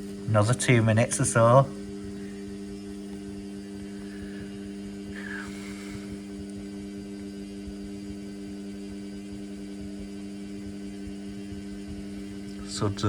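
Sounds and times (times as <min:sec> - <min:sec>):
washing machine humming: 0:00.0 - 0:13.0.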